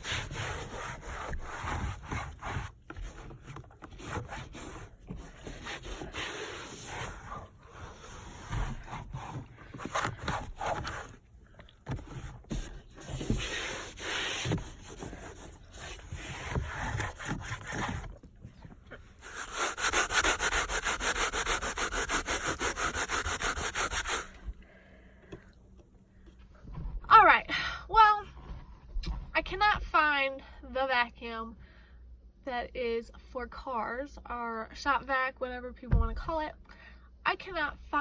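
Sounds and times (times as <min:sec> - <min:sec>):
cloth rag scrubbing surfaces: 0:00.0 - 0:11.2, 0:11.9 - 0:18.4, 0:19.1 - 0:24.4.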